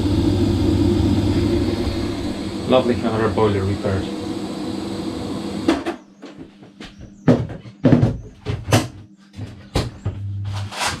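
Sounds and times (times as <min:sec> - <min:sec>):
low hum: 0:00.0 - 0:05.9.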